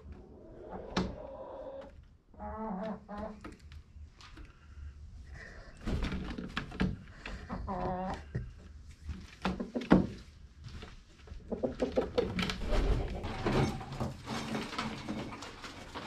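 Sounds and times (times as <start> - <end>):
chickens clucking: 0.3 - 1.9, 11.4 - 13.6.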